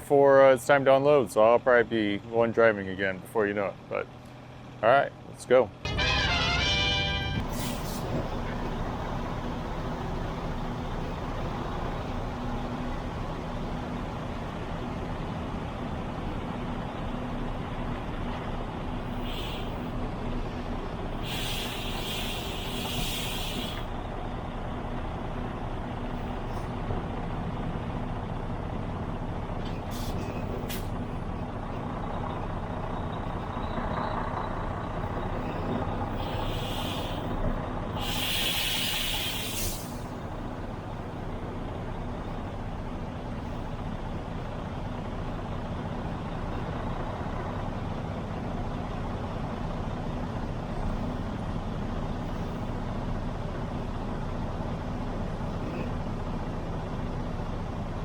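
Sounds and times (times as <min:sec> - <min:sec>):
diesel truck engine running: 0:00.0 - 0:58.0
air brake hiss: 0:06.7 - 0:08.2, 0:19.1 - 0:20.0, 0:21.2 - 0:23.9, 0:29.9 - 0:31.0, 0:35.6 - 0:37.4, 0:38.0 - 0:40.2.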